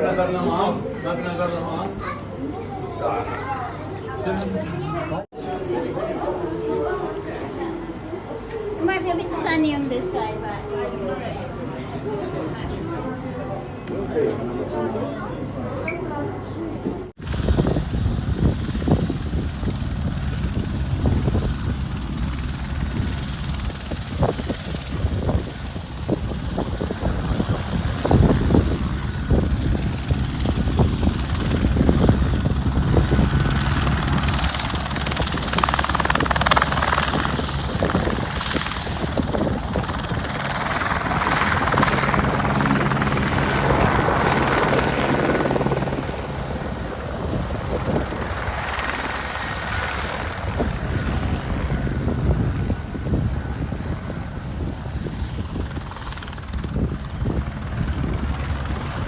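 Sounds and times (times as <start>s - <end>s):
aircraft engine drone: 17.2s - 59.0s.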